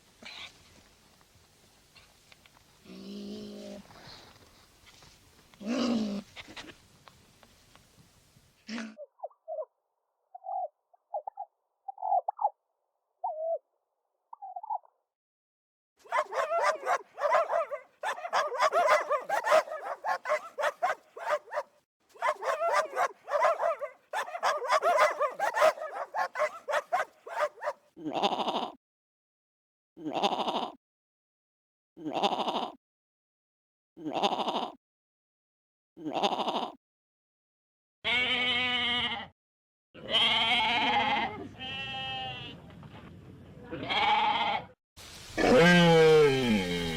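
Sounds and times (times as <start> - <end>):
animal calls: 16.1 - 21.6, 22.2 - 28.4
dense animal chattering: 16.1 - 21.6, 22.2 - 27.8.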